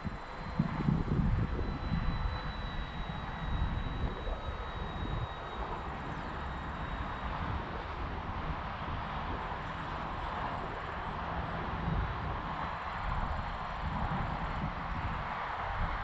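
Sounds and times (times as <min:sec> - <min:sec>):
model plane motor whining: 0:00.0 - 0:10.6
wind rumbling on microphone: 0:00.0 - 0:16.0.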